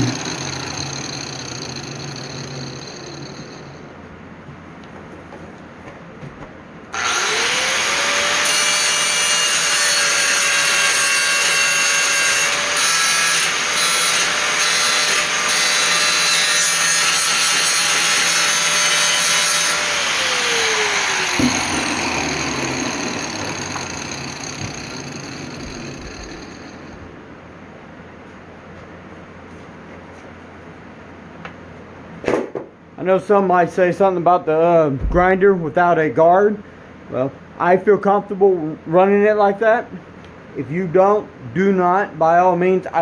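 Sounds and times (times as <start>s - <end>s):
angle grinder grinding steel: 0.0s - 3.7s, 7.0s - 27.0s.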